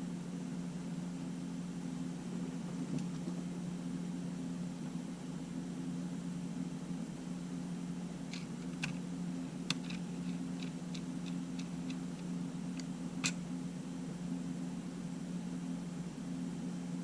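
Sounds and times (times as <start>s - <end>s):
steady low hum: 0.0s - 17.0s
small tools clicking: 9.7s - 13.4s.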